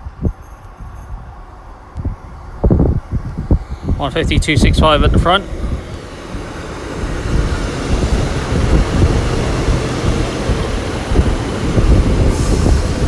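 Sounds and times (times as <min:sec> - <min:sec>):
diesel train rumbling: 0:00.0 - 0:13.0.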